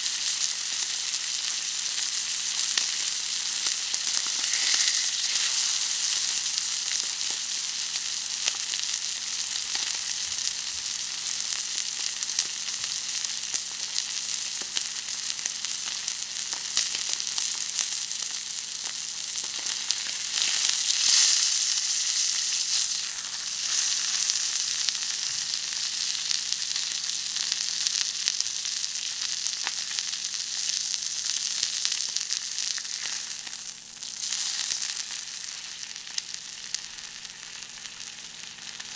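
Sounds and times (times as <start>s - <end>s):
steak sizzling on a griddle: 0.0s - 38.9s.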